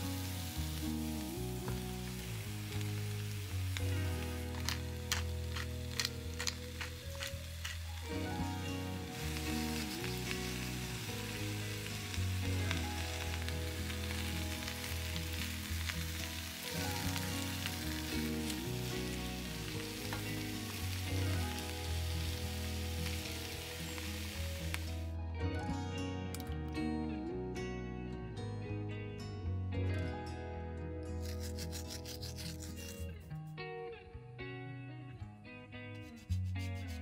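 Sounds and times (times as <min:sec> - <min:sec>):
food sizzling in a pan: 0:00.0 - 0:25.1.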